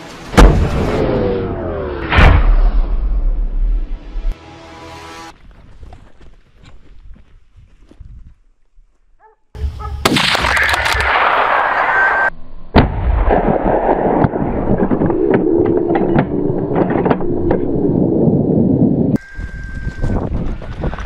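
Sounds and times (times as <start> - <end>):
gunshots: 10.0 - 15.1.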